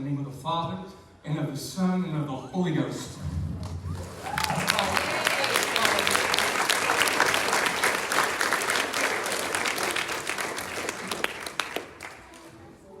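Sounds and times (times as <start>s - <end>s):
congregation applauding: 3.9s - 12.6s.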